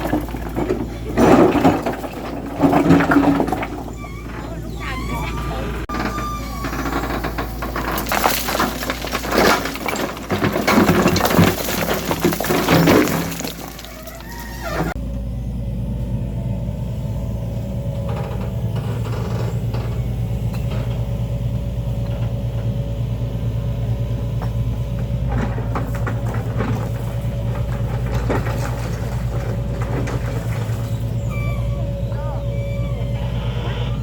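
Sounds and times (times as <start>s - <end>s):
engine idling drone: 15.0s - 34.0s.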